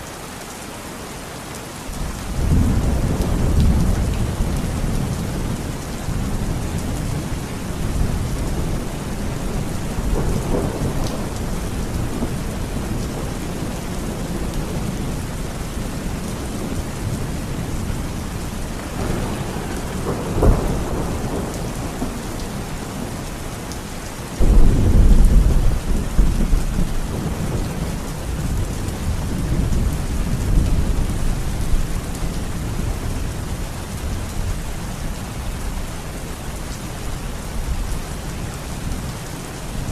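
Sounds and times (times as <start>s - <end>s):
heavy rain: 0.0s - 39.9s
thunder rumbling: 1.9s - 34.5s
sharp thunder crack: 18.9s - 22.3s, 24.4s - 27.6s.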